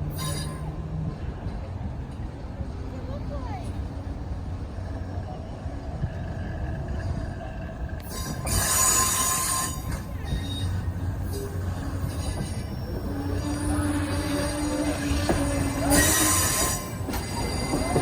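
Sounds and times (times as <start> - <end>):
train wheels squealing: 0.0 - 1.0, 8.0 - 18.0
train rumbling past: 0.0 - 18.0.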